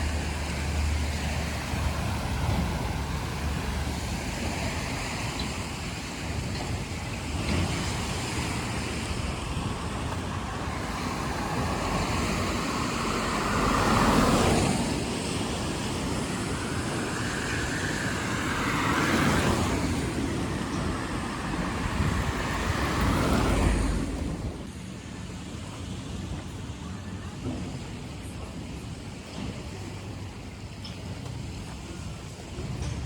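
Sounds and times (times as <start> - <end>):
cars passing on wet street: 0.0 - 24.9.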